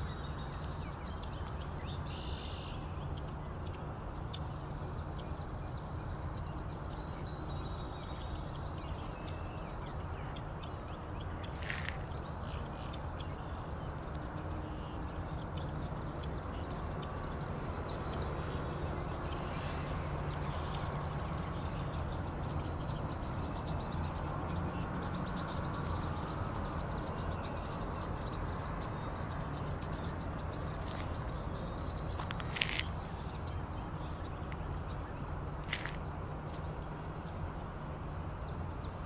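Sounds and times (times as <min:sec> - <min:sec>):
faint high bird calls: 0:02.0 - 0:02.9.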